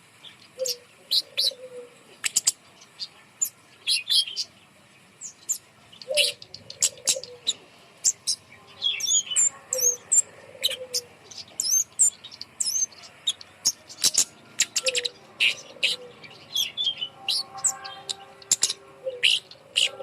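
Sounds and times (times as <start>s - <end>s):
lower warbled bird call: 0.3s - 4.5s, 5.2s - 20.0s
bird ticking chirps and whistles: 11.3s - 20.0s.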